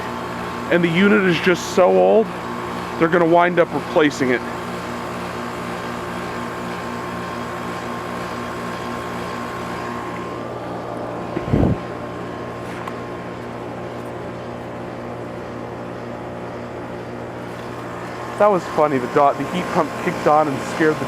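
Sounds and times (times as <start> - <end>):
heat pump hum: 0.0 - 21.0
heat pump low thump: 11.3 - 11.9.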